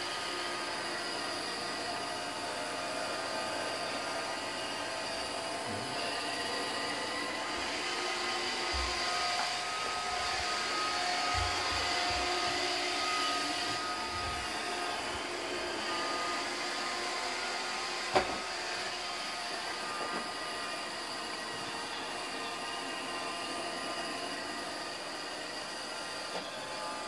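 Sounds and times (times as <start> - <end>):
robot vacuum motor whir: 0.0 - 27.0.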